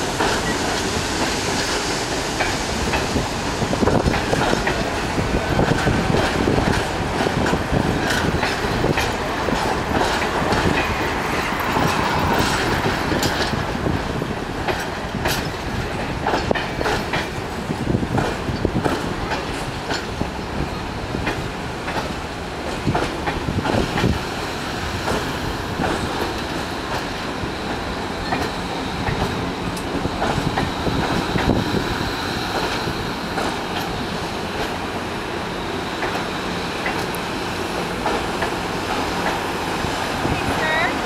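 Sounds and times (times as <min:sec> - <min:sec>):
train wheels rumbling: 0:00.0 - 0:41.0
wheels clicking over rail joints: 0:03.9 - 0:20.3, 0:36.0 - 0:41.0.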